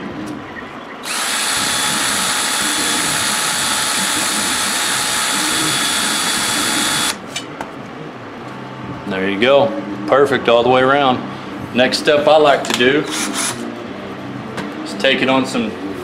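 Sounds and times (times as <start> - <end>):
cordless drill whirring: 1.0 - 7.2
high grinding whine: 1.0 - 7.3.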